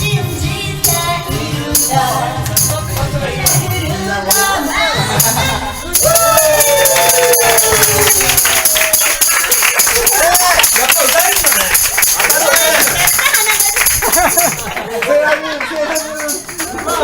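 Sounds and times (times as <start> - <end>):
woman singing: 0.0 - 6.6
karaoke backing music: 0.0 - 15.0
tambourine: 4.3 - 14.8, 16.0 - 17.0.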